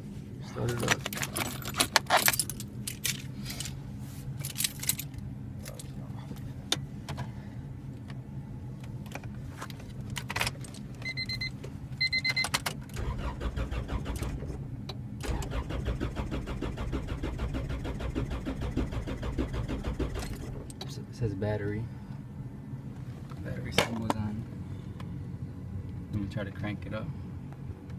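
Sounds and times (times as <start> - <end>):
engine starter cranking: 0.7 - 3.8, 13.0 - 14.5, 15.2 - 20.7
dashboard warning beeps: 11.0 - 12.6.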